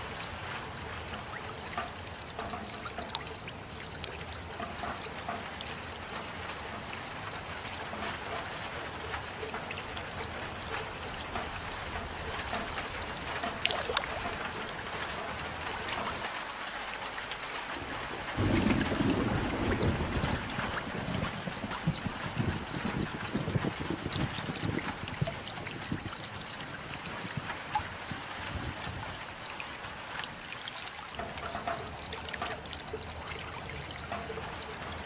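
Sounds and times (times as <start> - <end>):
rain falling: 0.0 - 35.0.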